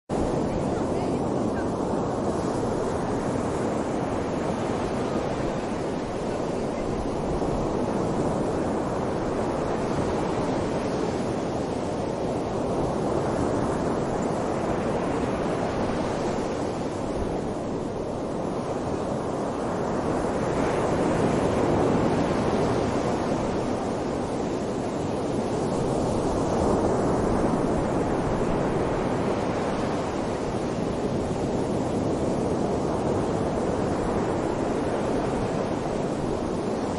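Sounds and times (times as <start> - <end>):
strong wind gusting: 0.1 - 36.9.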